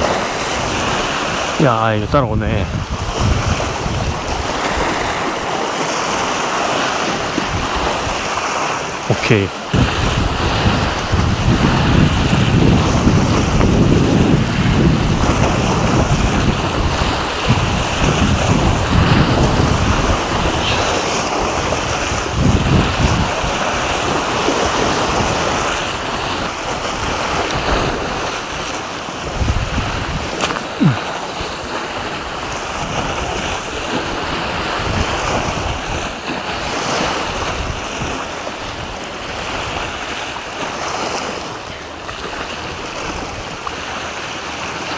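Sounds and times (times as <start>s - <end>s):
sea surf: 0.0s - 44.9s
wind buffeting microphone: 2.6s - 5.2s, 9.8s - 24.1s.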